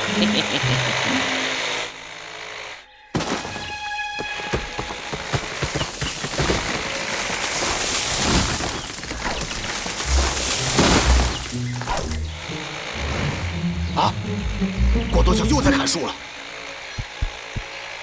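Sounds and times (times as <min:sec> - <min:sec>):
background music: 0:00.0 - 0:02.1, 0:10.1 - 0:17.6
cartoon chainsaw buzzing: 0:00.0 - 0:02.9, 0:09.7 - 0:18.0.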